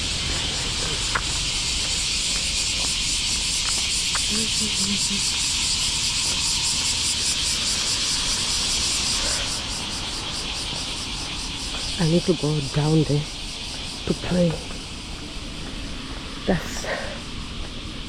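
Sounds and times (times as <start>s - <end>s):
low rumble: 0.0s - 16.6s
cicadas buzzing: 0.0s - 18.0s.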